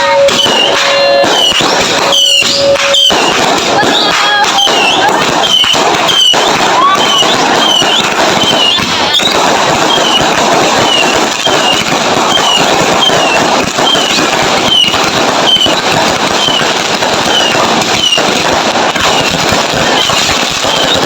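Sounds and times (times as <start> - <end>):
high falling whistle: 0.0 - 3.4
fireworks bangs: 0.0 - 21.0
fireworks crackling: 0.0 - 21.0.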